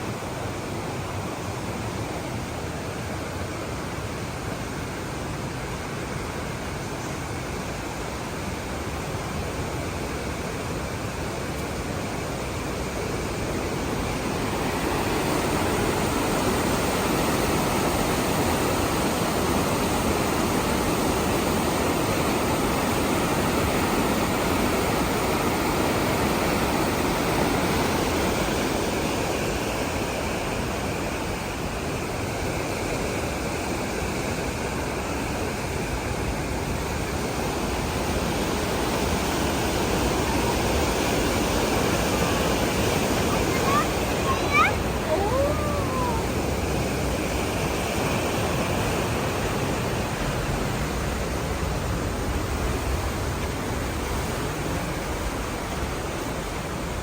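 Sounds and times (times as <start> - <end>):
waterfall rushing: 37.8 - 57.0.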